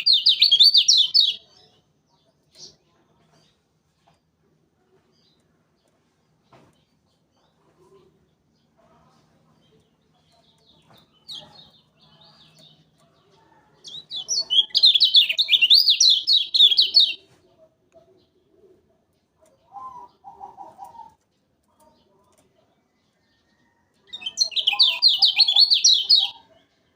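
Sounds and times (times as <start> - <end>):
bird chirping rapidly: 0.0 - 1.4, 14.0 - 17.2, 24.2 - 26.4.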